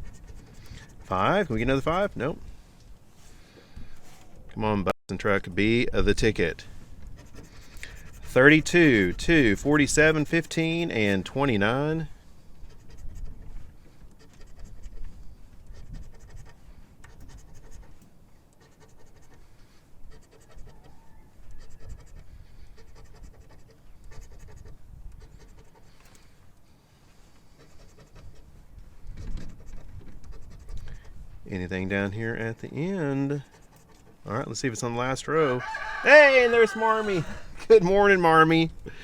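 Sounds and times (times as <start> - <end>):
scratching lottery ticket: 0.0 - 2.2, 6.2 - 26.4, 27.4 - 31.6, 32.7 - 34.7.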